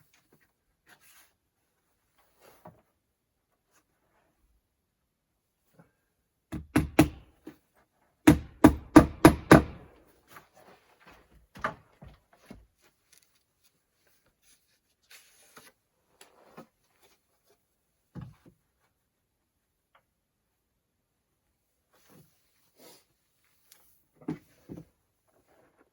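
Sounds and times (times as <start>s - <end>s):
hammer nailing shingles: 6.5s - 7.3s, 8.2s - 9.9s.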